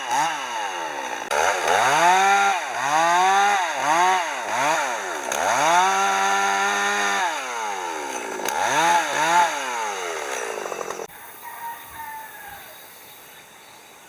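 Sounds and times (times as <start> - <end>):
chainsaw engine revving: 0.0 - 11.1.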